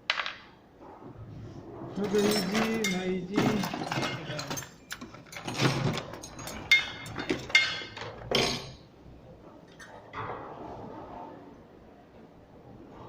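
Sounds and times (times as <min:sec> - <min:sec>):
metal tools clicking and clinking: 0:02.0 - 0:08.8.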